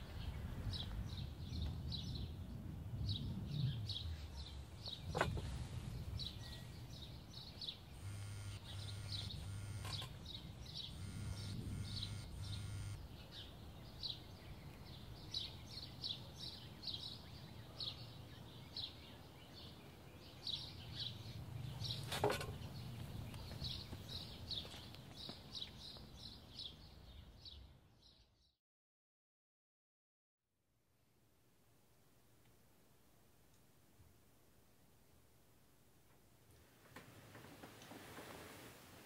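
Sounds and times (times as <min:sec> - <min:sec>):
small birds chirping: 0:00.0 - 0:28.6
short buzzes: 0:07.9 - 0:13.0.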